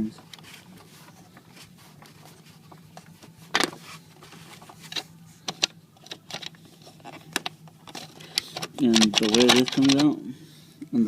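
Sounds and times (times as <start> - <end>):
faint steady hum: 0.0 - 11.0
metal parts clicking and knocking: 4.8 - 10.2.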